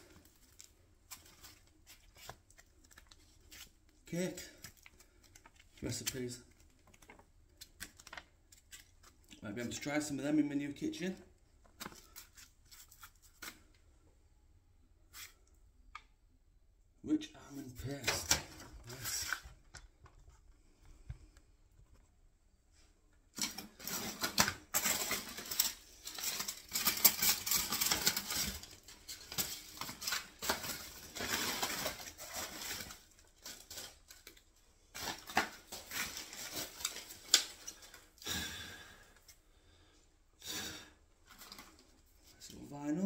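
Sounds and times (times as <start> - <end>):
papers rustling and rummaging: 0.0 - 9.8, 11.6 - 13.8, 17.8 - 20.5, 23.3 - 38.2, 41.2 - 42.4.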